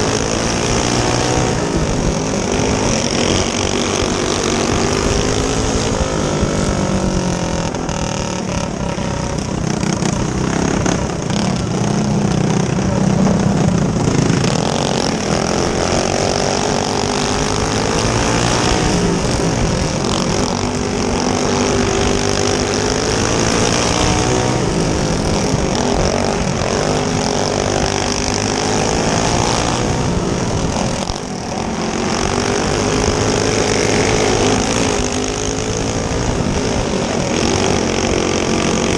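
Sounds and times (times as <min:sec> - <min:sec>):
kart engines racing: 0:00.0 - 0:38.9.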